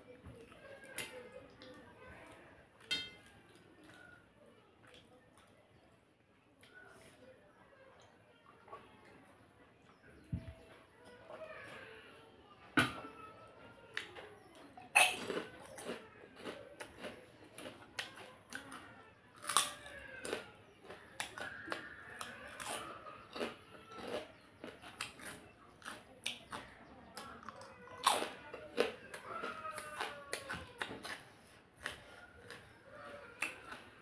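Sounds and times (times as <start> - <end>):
person chewing: 14.9 - 18.8, 19.4 - 34.0.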